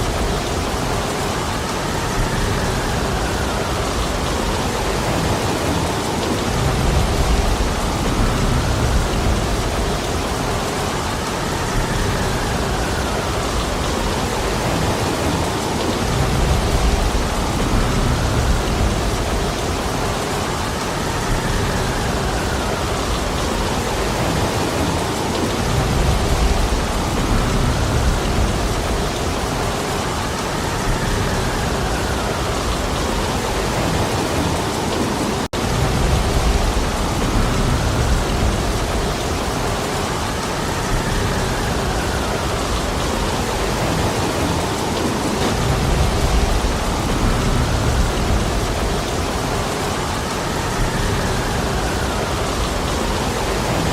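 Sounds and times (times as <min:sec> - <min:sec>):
heavy rain falling: 0:00.0 - 0:53.9
deep rumble: 0:45.4 - 0:49.6.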